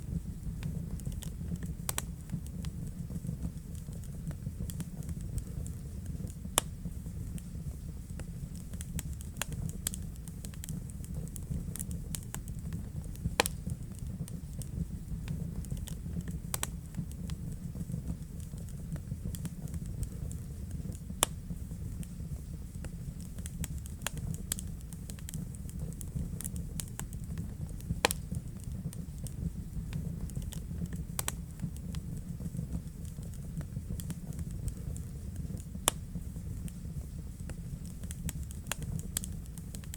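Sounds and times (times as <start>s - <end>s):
low steady rumble: 0.0s - 39.9s
wood fire crackling and popping: 0.0s - 39.9s.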